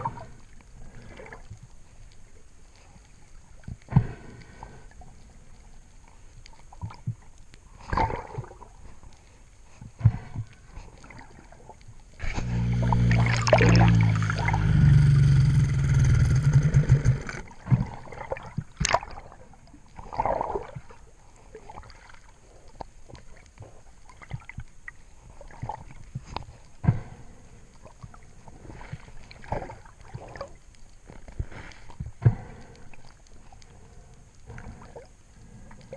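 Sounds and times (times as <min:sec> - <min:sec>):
water gurgling: 0:00.0 - 0:01.5, 0:10.0 - 0:22.4, 0:27.8 - 0:30.7
motor-like hum: 0:12.2 - 0:17.9.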